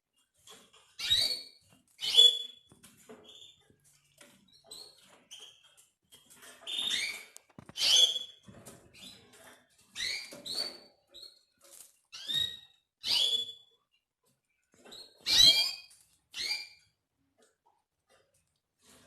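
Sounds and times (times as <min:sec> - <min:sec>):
canaries chirping: 0:00.4 - 0:03.6, 0:04.5 - 0:11.4, 0:12.2 - 0:13.7, 0:14.8 - 0:16.9.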